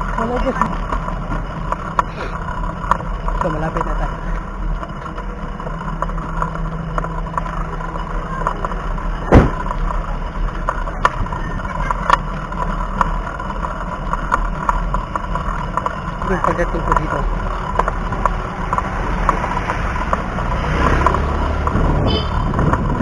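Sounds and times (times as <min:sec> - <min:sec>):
bicycle clicks and rattles: 0:00.0 - 0:23.0
road rumble: 0:00.0 - 0:23.0
wind: 0:00.0 - 0:23.0
loud knock: 0:09.3 - 0:09.7.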